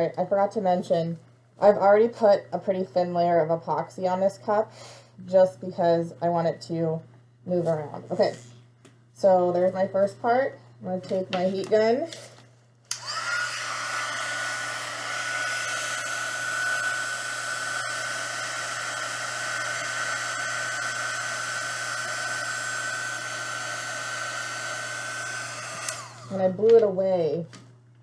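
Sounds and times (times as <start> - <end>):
heat gun blowing and whining: 12.9 - 26.6.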